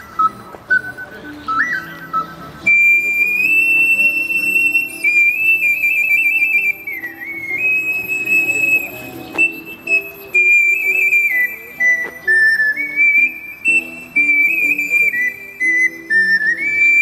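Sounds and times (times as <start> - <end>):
ocarina melody: 0.0 - 17.0
soft backing accompaniment: 0.0 - 17.0.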